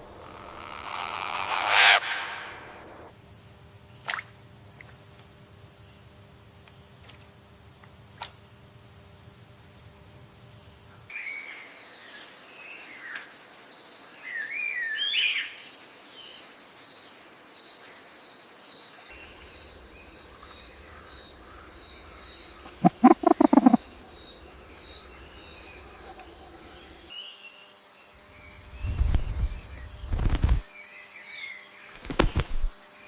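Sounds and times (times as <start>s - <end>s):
jungle background: 0.0s - 33.0s
birds whistling: 22.5s - 25.9s
bird harsh notes: 22.7s - 23.8s.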